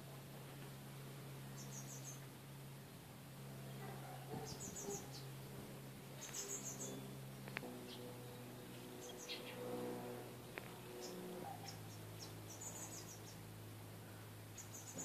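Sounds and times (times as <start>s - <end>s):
low steady hum: 0.0s - 15.0s
faint small bird chirping: 1.6s - 2.3s, 4.4s - 5.3s, 6.2s - 7.1s, 7.9s - 9.6s, 11.0s - 13.4s, 14.0s - 15.0s.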